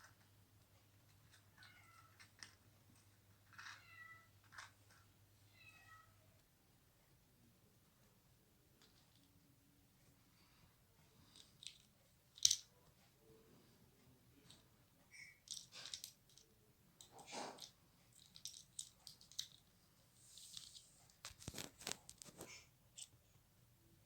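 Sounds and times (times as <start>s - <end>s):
parrot toys clicking and rattling: 11.3s - 12.7s, 15.5s - 16.4s, 17.0s - 19.6s.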